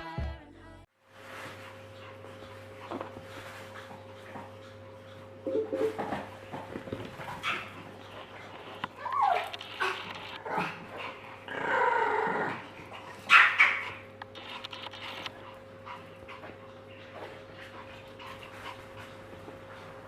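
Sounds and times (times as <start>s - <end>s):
dog whining: 9.0s - 10.2s.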